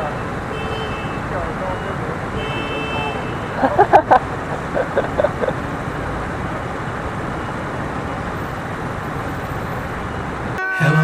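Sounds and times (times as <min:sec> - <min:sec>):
wind and road noise: 0:00.0 - 0:10.6.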